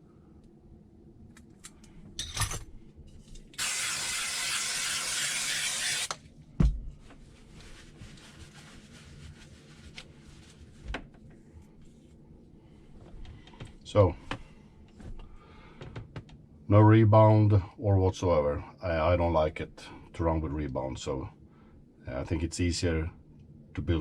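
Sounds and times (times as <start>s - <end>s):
spraying hiss: 3.6s - 6.1s.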